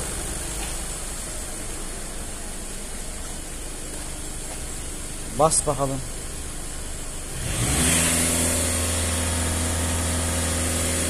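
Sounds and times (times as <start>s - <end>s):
diesel engine revving: 0.0s - 1.9s, 6.8s - 11.0s
exhaust hiss: 0.0s - 11.0s.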